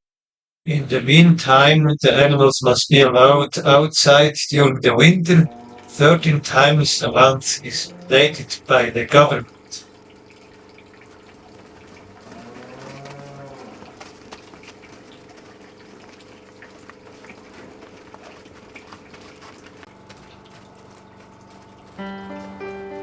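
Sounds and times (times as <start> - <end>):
steady low hum: 5.1 - 23.0
cow mooing: 5.3 - 23.0.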